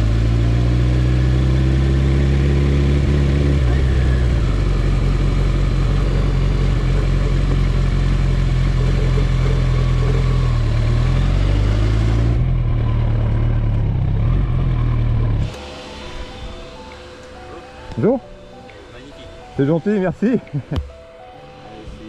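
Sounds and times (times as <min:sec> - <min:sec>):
motorcycle engine running: 0:00.0 - 0:16.8.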